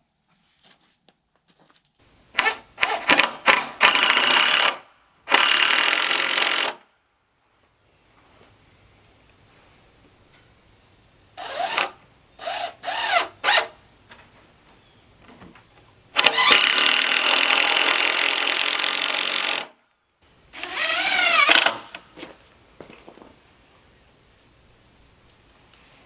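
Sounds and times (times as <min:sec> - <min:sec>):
cordless drill whirring: 0:02.4 - 0:06.8, 0:11.4 - 0:13.8, 0:16.2 - 0:19.7, 0:20.5 - 0:22.0.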